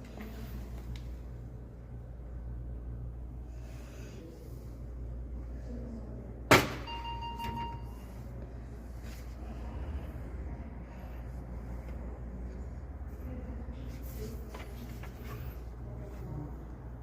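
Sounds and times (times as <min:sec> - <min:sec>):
steady low hum: 0:00.0 - 0:17.0
short beep tone: 0:06.8 - 0:08.1.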